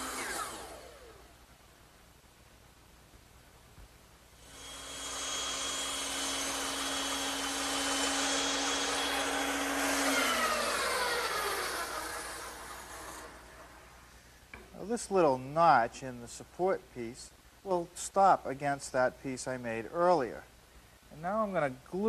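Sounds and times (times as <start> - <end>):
power tool cutting wood: 0.0 - 1.3, 4.4 - 13.9.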